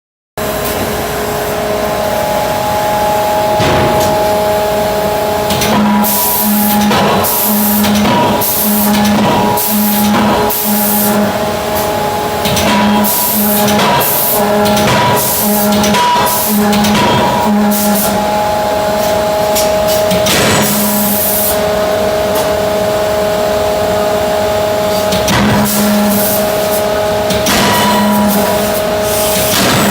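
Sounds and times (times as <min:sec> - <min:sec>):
machine steady hum: 0:00.4 - 0:29.9
loud noisy burst: 0:01.6 - 0:21.9
pulsing low tone: 0:01.8 - 0:19.8
loud hydraulic hiss: 0:05.5 - 0:11.9, 0:27.8 - 0:29.9.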